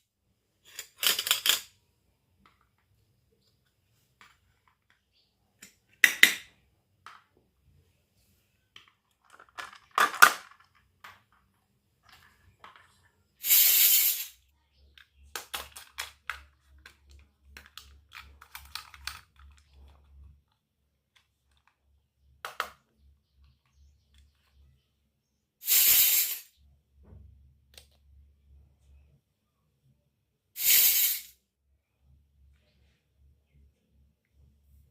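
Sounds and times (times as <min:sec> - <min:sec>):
toy kitchen pieces clicking: 0:00.6 - 0:01.8, 0:04.2 - 0:06.5, 0:08.8 - 0:22.9
short bursts of hiss: 0:13.4 - 0:14.4, 0:25.6 - 0:26.5, 0:30.6 - 0:31.4.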